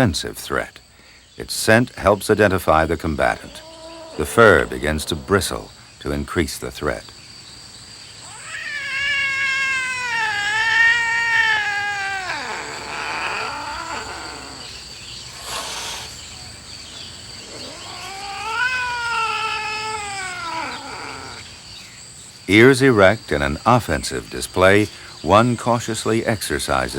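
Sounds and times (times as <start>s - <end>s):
cats yowling: 3.2s - 5.7s, 8.2s - 16.2s, 17.4s - 21.5s.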